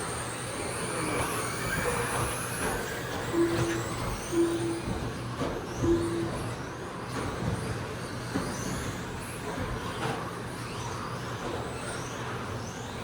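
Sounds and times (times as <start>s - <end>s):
rc truck motors whining: 0.0s - 6.4s.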